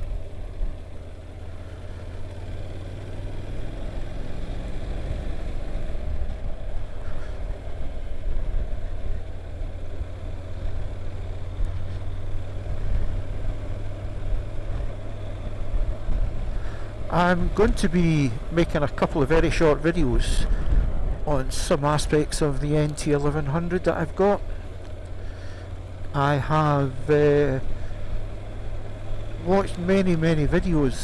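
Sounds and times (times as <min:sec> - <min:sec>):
motorcycle engine running: 0:00.0 - 0:31.0
road noise: 0:00.0 - 0:31.0
wind rush: 0:20.1 - 0:21.6.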